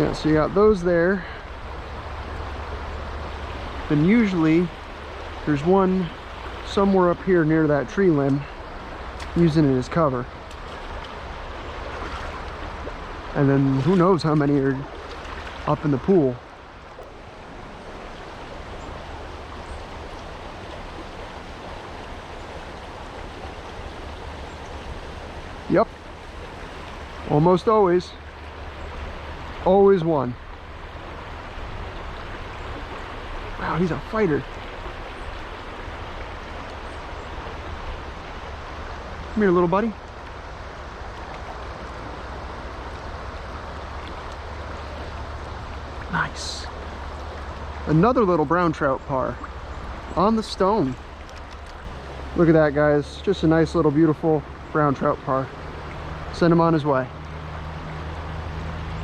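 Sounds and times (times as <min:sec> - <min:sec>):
creek rushing over rocks: 0:00.0 - 0:59.0.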